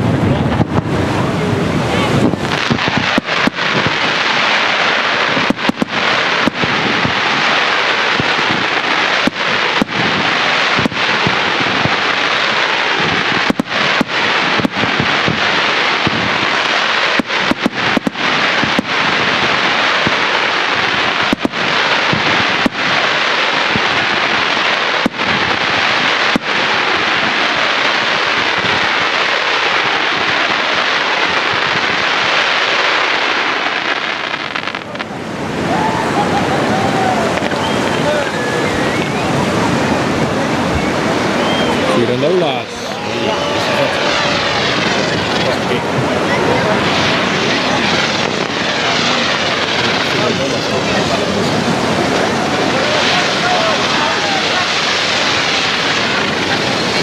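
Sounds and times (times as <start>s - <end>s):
fireworks bangs: 0.0s - 57.0s
fireworks firing: 0.0s - 57.0s.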